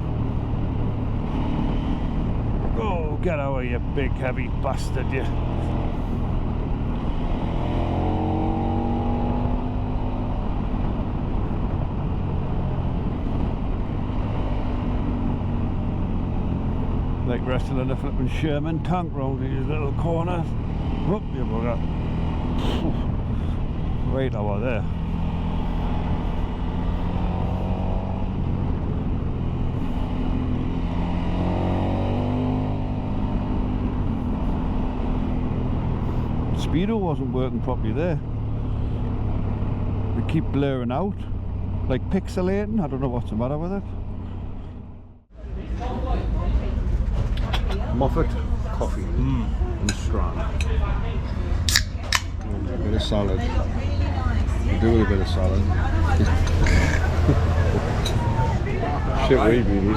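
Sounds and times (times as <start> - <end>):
motorcycle engine rumble: 0.0 - 59.9
wind rush: 5.3 - 17.2.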